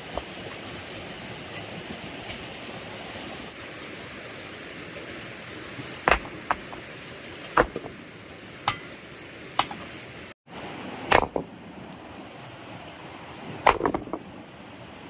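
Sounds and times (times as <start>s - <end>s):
hand tool striking hard material: 6.1s - 6.8s.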